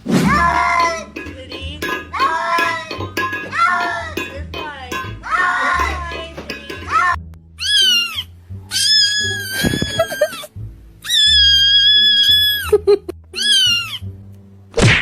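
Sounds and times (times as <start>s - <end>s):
background music with bass: 0.0s - 7.6s
cat meowing: 7.6s - 10.4s, 11.0s - 12.5s.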